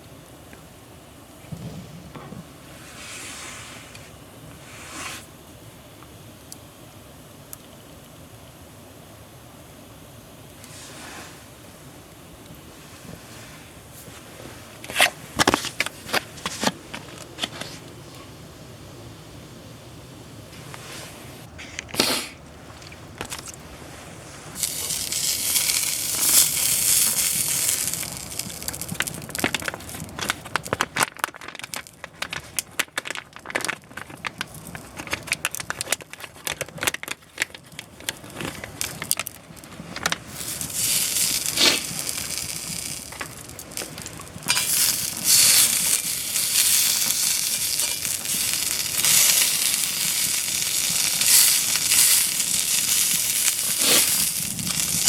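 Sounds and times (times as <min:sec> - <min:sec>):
wood fire crackling and popping: 0:03.9 - 0:18.6, 0:19.3 - 0:55.0
food sizzling in a skillet: 0:24.6 - 0:30.2, 0:40.3 - 0:55.0.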